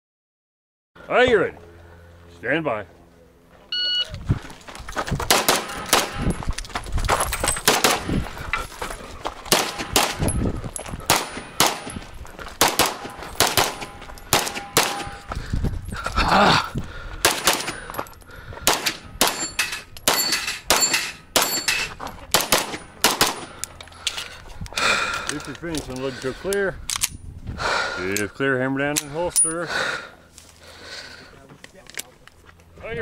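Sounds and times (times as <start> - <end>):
rapid pistol fire: 5.3 - 6.3, 7.7 - 8.1, 9.5 - 10.3, 11.1 - 11.9, 12.6 - 15.2, 17.2 - 17.8, 18.7 - 19.5, 22.3 - 23.5
steel targets ringing: 12.9 - 15.3, 19.2 - 22.0.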